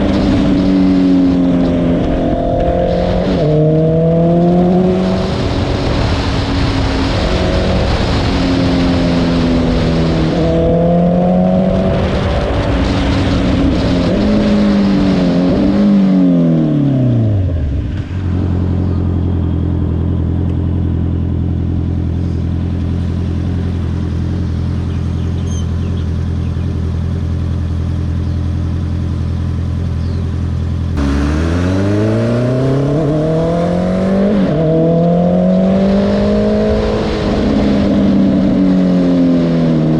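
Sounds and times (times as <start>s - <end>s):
motorcycle engine revving: 0.0s - 39.9s
motorcycle engine idling: 18.5s - 31.0s.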